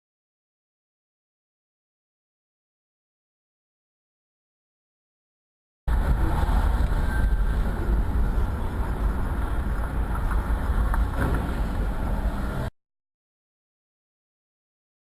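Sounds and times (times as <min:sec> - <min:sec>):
car road and engine rumble: 0:05.9 - 0:12.7.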